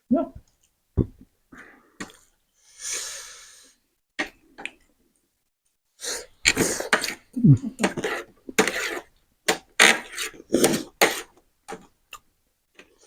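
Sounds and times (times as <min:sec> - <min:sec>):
hissing breath: 0:02.6 - 0:03.8.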